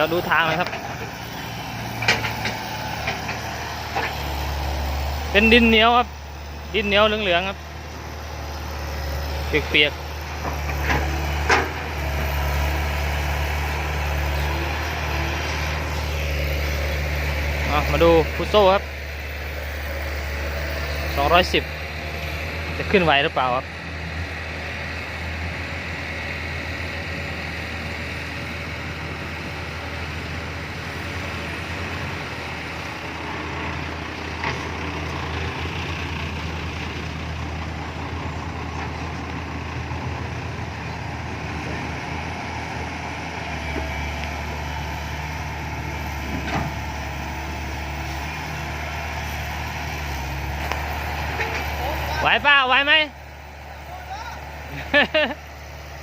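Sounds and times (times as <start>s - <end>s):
diesel truck engine under load: 0.0s - 56.0s.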